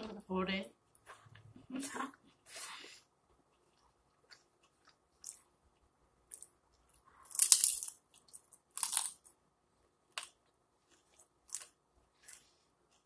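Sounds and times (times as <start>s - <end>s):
crunching and chewing fried food: 2.3s - 9.4s, 10.1s - 13.0s.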